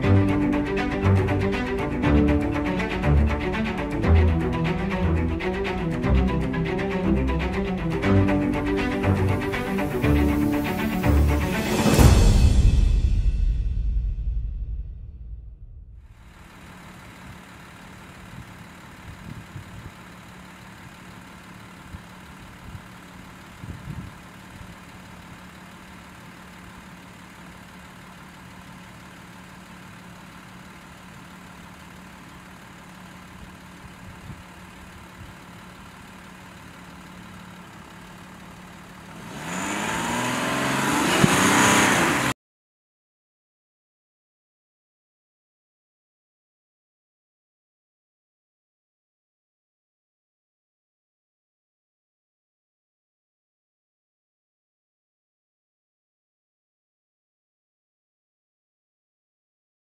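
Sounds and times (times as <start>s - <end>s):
car engine idling and revving: 0.0s - 12.5s, 15.7s - 42.4s.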